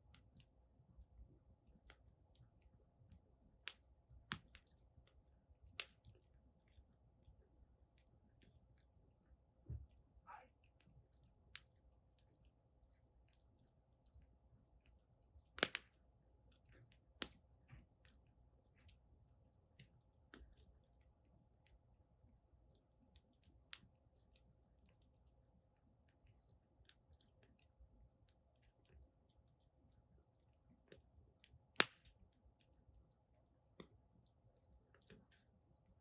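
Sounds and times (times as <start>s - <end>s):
wood fire crackling and popping: 1.2s - 11.8s, 15.0s - 18.2s, 30.9s - 32.3s.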